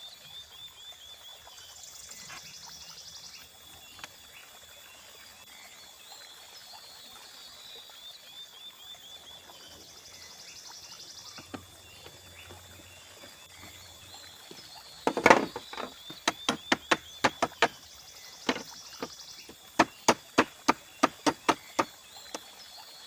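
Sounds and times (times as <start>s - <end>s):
faint stream: 0.0s - 23.0s
insects: 0.0s - 23.0s
blade chopping bamboo: 15.1s - 17.8s, 18.5s - 22.4s.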